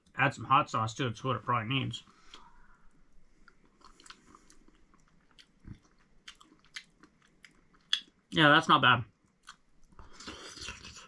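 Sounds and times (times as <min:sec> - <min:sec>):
person chewing food: 0:02.1 - 0:08.3, 0:09.2 - 0:11.0.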